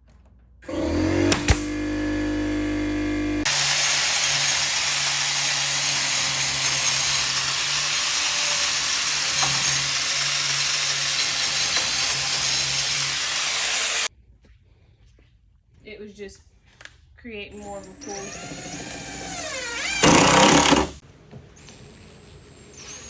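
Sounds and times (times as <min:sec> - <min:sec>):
power tool running: 0:00.6 - 0:14.1, 0:17.9 - 0:21.0.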